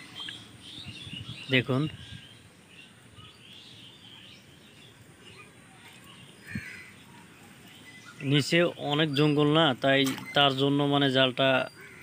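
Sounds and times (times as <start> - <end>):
faint birds chirping: 0.0 - 12.0
outdoor background noise: 0.0 - 12.0.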